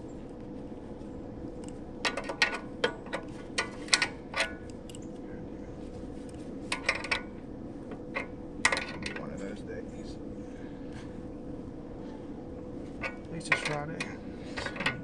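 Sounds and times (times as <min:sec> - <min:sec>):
steady low hum: 0:00.0 - 0:15.0
tools clicking and knocking: 0:01.6 - 0:05.1, 0:06.7 - 0:07.3, 0:07.9 - 0:09.3, 0:13.0 - 0:15.0.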